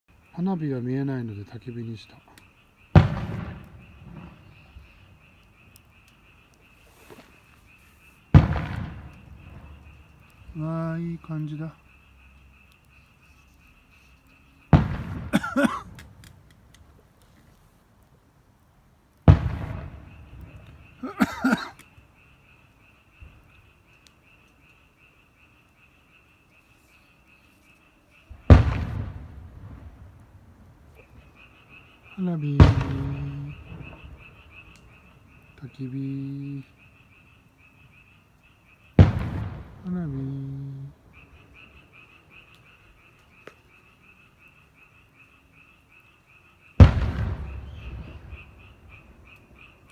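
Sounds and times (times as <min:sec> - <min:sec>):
night animals chirping: 0:00.1 - 0:17.6, 0:19.2 - 0:49.9
frogs croaking: 0:00.1 - 0:49.9
firework boom: 0:03.0 - 0:04.7, 0:08.4 - 0:10.0, 0:14.8 - 0:16.2, 0:19.3 - 0:21.7, 0:28.4 - 0:30.2, 0:32.6 - 0:34.3, 0:39.0 - 0:39.9, 0:46.8 - 0:48.6.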